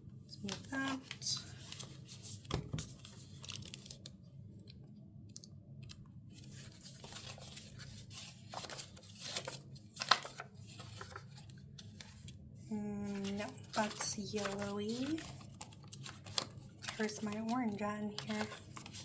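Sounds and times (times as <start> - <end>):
paper rustling and crinkling: 0.4 - 4.2, 5.8 - 12.4, 13.0 - 19.0
sharp paper crackle: 0.5 - 4.2, 6.4 - 12.3, 13.0 - 19.0.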